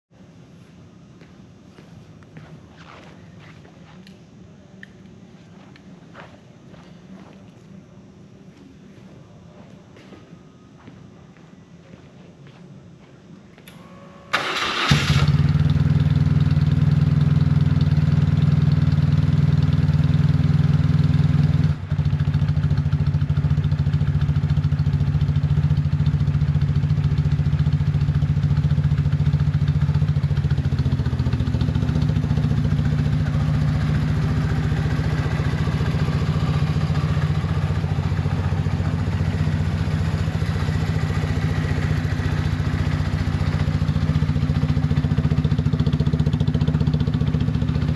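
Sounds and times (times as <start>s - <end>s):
motorcycle engine idling: 14.3s - 47.9s.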